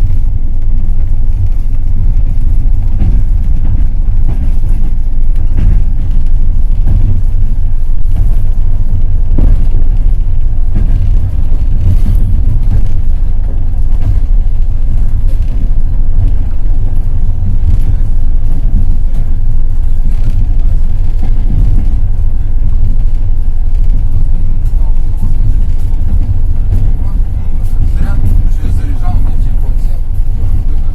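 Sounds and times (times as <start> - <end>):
train wheels rumbling on rails: 0.0 - 30.9.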